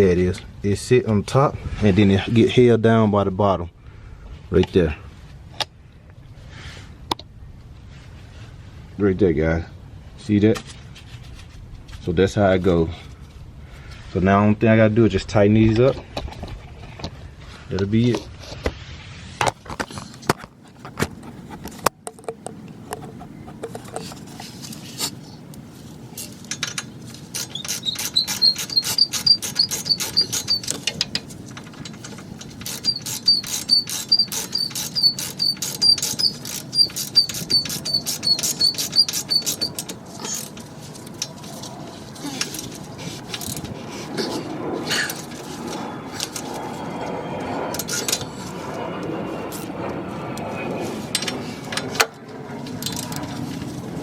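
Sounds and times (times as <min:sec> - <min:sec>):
socket ratchet clicking: 0:27.4 - 0:31.3, 0:32.6 - 0:40.5.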